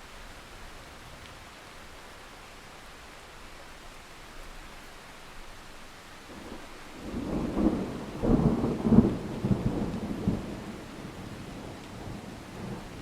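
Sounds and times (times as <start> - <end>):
steady rain: 0.0 - 13.0
thunder rumbling: 6.4 - 13.0.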